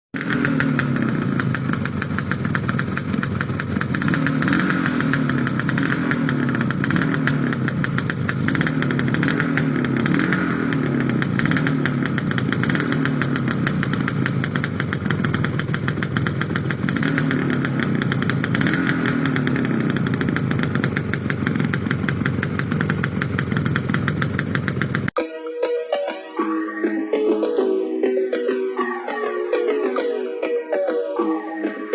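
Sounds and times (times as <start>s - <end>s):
two-stroke motorcycle engine idling: 0.2s - 25.2s.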